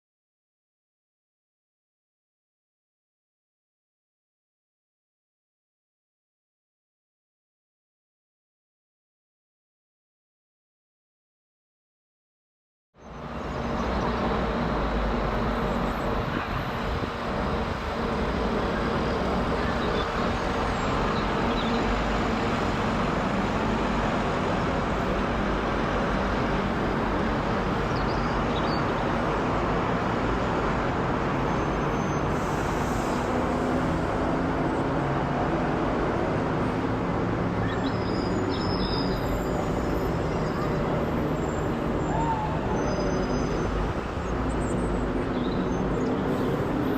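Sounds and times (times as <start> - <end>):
jet engine roar overhead: 32.2 - 37.7.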